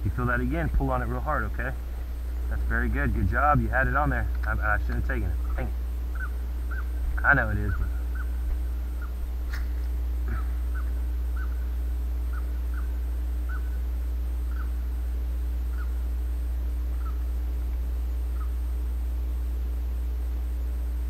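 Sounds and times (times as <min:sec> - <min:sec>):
steady low rumble: 0:00.0 - 0:21.0
bird calling in clipped notes: 0:04.3 - 0:14.9, 0:15.7 - 0:16.1, 0:16.9 - 0:18.6.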